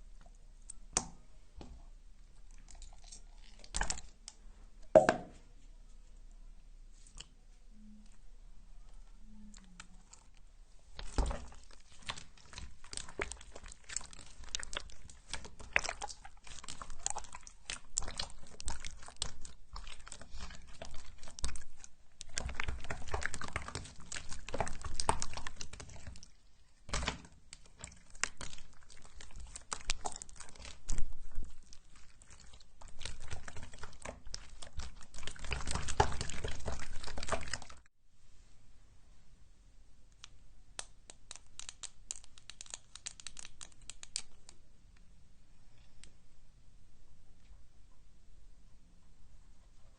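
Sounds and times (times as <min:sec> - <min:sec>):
slime squished by hand: 0:02.5 - 0:04.4, 0:09.5 - 0:37.9, 0:40.7 - 0:44.6.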